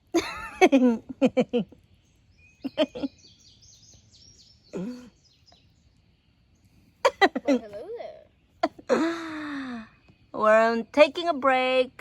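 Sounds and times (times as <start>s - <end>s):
songbird singing high chirps: 1.5s - 12.0s
people's voices: 7.1s - 8.3s.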